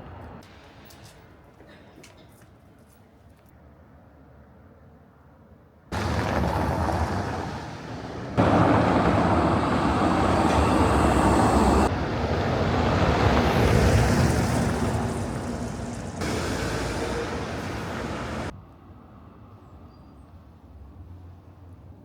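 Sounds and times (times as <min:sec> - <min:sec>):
low traffic rumble: 0:05.9 - 0:18.6.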